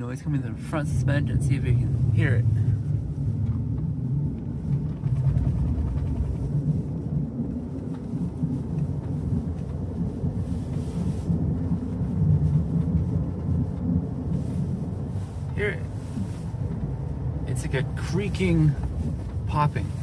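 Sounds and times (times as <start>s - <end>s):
road and drivetrain rumble: 0.0s - 20.0s
creaking popping from car underside: 3.3s - 14.3s, 18.7s - 19.8s.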